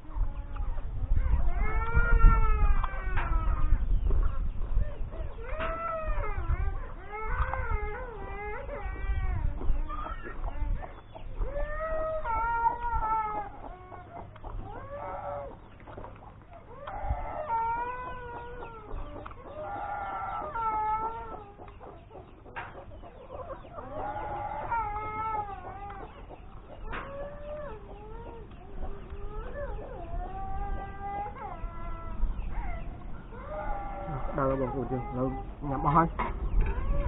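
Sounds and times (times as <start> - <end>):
chickens clucking: 0.0 - 37.0
drawn-out wavering chicken calls: 0.0 - 37.0.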